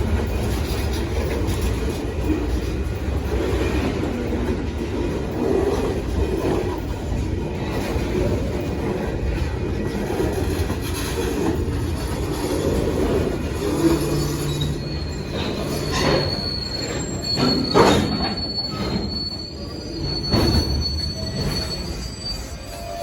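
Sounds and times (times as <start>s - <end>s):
train wheels rumbling on rail: 0.0s - 23.0s
high wheel squeal: 10.5s - 23.0s
loud clanks: 14.4s - 19.4s.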